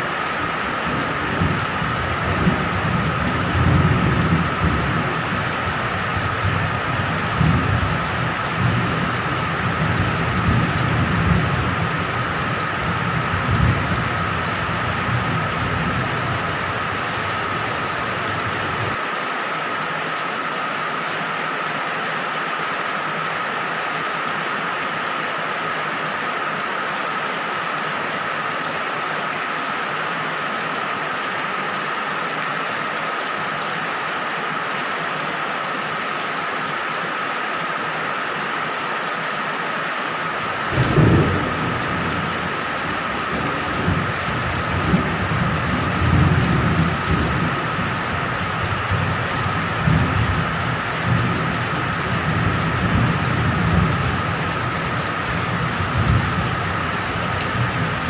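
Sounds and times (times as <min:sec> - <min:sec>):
steady rain falling: 0:00.0 - 0:58.0
thunder rumbling: 0:01.1 - 0:19.0, 0:40.7 - 0:58.0.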